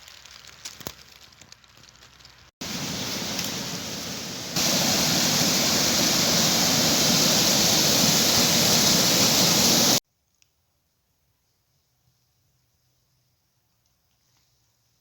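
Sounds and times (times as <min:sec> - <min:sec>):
waterfall rushing: 0:02.6 - 0:10.0.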